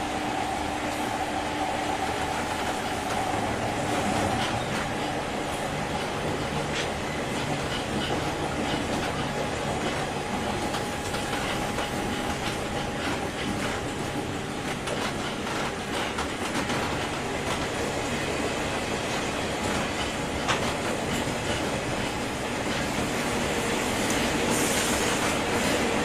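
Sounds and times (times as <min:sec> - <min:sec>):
electric train rolling noise: 0:00.0 - 0:26.0
wheels clicking over rail joints: 0:02.6 - 0:05.2, 0:05.9 - 0:17.9, 0:18.7 - 0:23.4.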